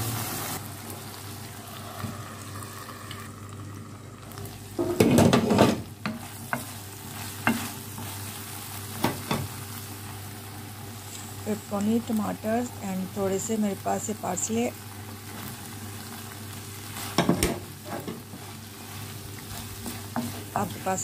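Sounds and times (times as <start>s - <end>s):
vegetables sizzling in a pan: 0.0s - 21.0s
utensil scraping a pan: 17.1s - 20.8s.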